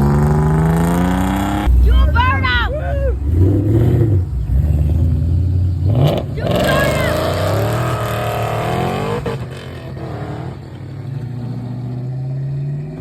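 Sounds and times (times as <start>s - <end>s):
car engine revving hard: 0.0s - 2.3s, 3.2s - 13.0s.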